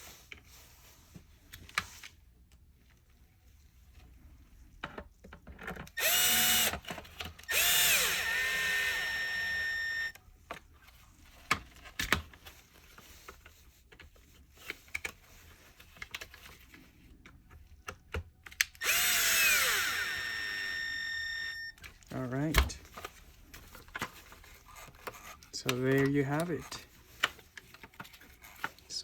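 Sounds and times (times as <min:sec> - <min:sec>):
power screwdriver motor whine: 0:06.0 - 0:10.2, 0:18.8 - 0:21.8.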